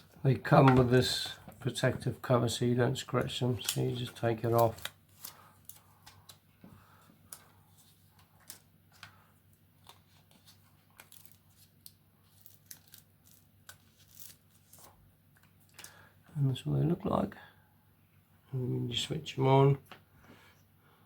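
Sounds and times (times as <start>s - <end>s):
plastic film peeling off: 9.8s - 14.9s.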